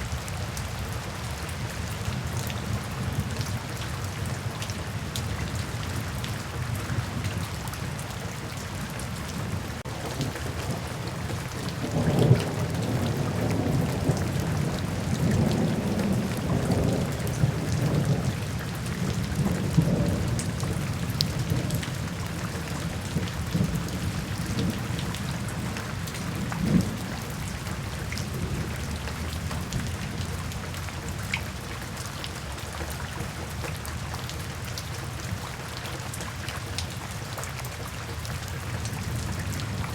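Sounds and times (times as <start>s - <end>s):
steady rain falling: 0.0s - 39.9s
thunder rumbling: 9.4s - 30.9s, 39.0s - 39.9s.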